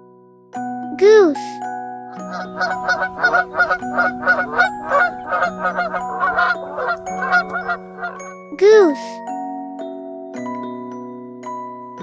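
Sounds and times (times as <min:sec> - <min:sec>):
goose honking: 0:02.2 - 0:08.3.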